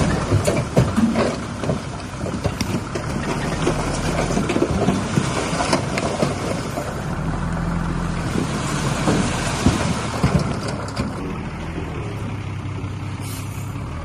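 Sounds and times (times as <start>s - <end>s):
diesel earthmoving machinery running: 0.0s - 14.0s.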